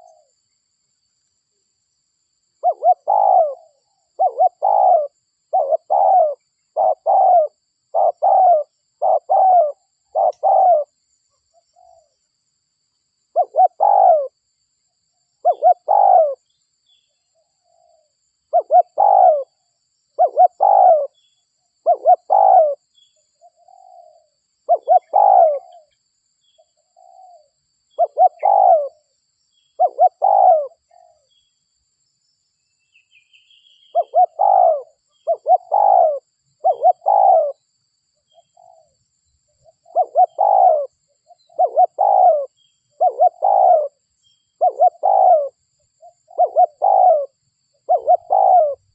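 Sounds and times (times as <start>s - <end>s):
dove cooing: 0.0s - 0.3s, 2.6s - 10.9s, 13.3s - 14.4s, 15.4s - 16.5s, 17.6s - 19.6s, 20.2s - 21.2s, 21.8s - 22.8s, 23.4s - 26.0s, 26.9s - 29.1s, 29.8s - 31.3s, 33.9s - 37.6s, 38.3s - 39.0s, 39.6s - 44.0s, 44.6s - 48.9s.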